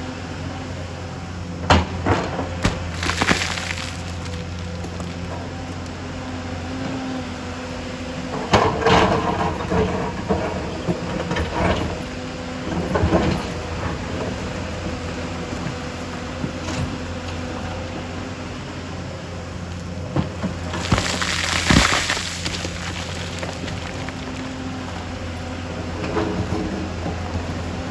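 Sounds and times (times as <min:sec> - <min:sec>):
excavator diesel engine running: 0:00.0 - 0:27.9
bucket clattering on rock: 0:01.7 - 0:05.3, 0:19.9 - 0:27.9.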